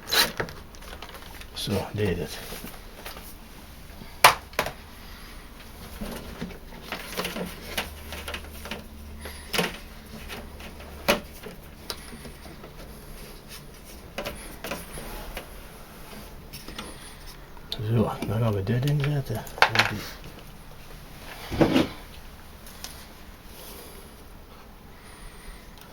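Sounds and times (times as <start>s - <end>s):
faint low hum: 0.0s - 25.9s
plastic parts clicking and knocking: 0.2s - 1.5s, 4.2s - 4.8s, 5.8s - 12.9s, 13.5s - 15.5s, 18.2s - 20.5s.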